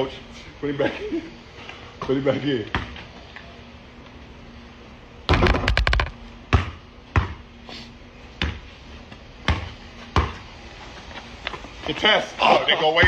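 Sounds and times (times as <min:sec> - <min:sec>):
basketball bouncing on a court: 0:05.3 - 0:07.4, 0:08.4 - 0:08.6, 0:09.4 - 0:10.4.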